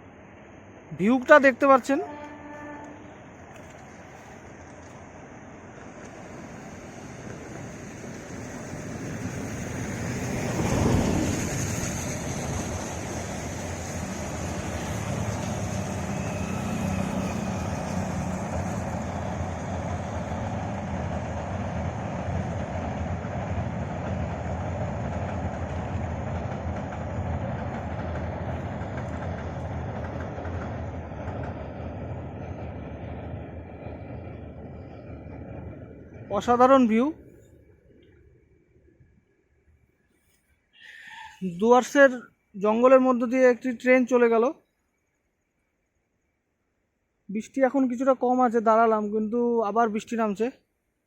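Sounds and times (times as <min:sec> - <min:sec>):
train wheels rumbling on track: 0:00.5 - 0:38.5.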